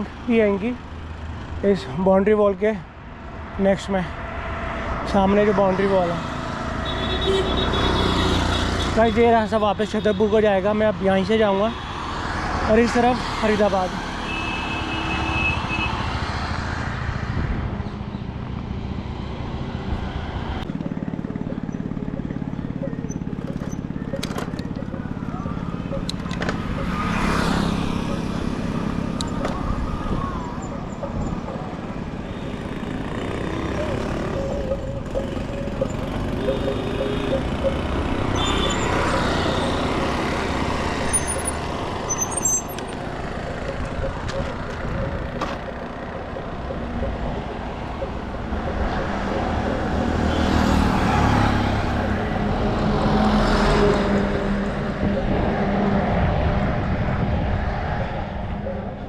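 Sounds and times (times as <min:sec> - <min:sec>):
motor vehicle passing: 0:18.7 - 0:59.0
short high-pitched squeaks: 0:33.7 - 0:40.0, 0:41.0 - 0:43.1.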